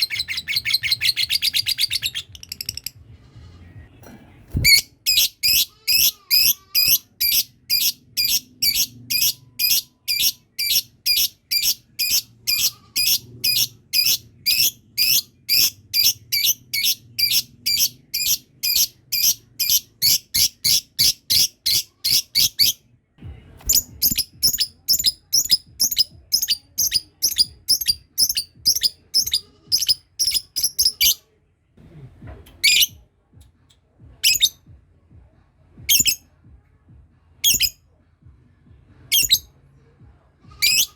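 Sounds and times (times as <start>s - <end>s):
lovebird rapid high chirps: 4.6s - 22.8s, 23.7s - 31.2s, 35.9s - 36.2s, 39.1s - 39.4s.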